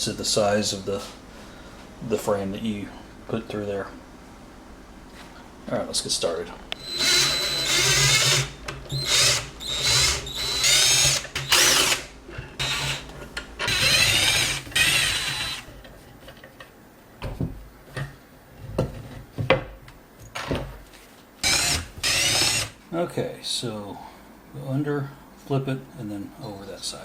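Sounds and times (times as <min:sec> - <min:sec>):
power drill backing out screws: 0:06.8 - 0:15.7, 0:21.4 - 0:22.8.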